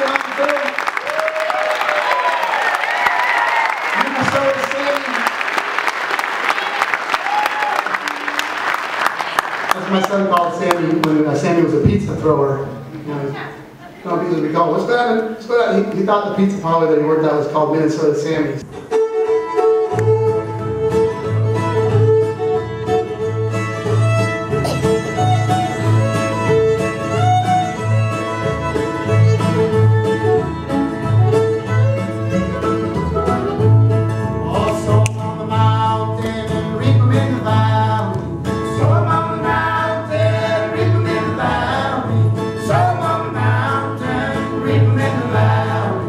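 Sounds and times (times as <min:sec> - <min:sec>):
guitar: 0:17.4 - 0:46.0
bass: 0:17.7 - 0:46.0
mandolin: 0:18.6 - 0:43.4
fiddle: 0:18.7 - 0:34.4.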